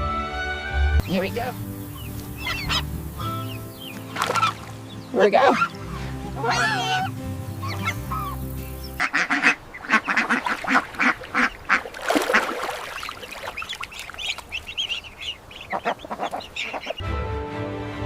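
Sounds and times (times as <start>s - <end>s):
background music: 0.0s - 9.6s, 16.8s - 18.0s
ducks quacking: 1.0s - 17.0s.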